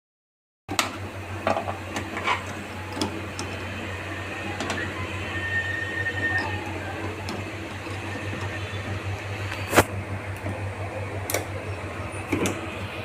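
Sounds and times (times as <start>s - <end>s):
microwave oven humming: 0.7s - 13.0s
thin high tone: 3.6s - 9.0s.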